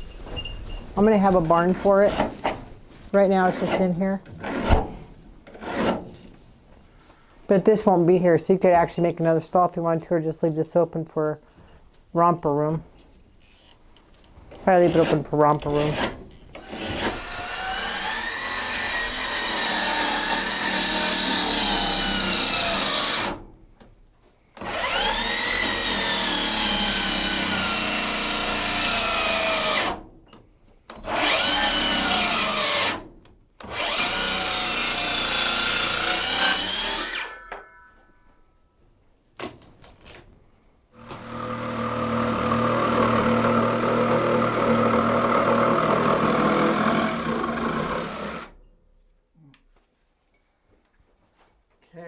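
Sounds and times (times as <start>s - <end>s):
power saw cutting wood: 3.2s - 6.2s, 14.6s - 23.5s, 24.6s - 30.1s, 31.0s - 37.6s, 41.0s - 48.6s.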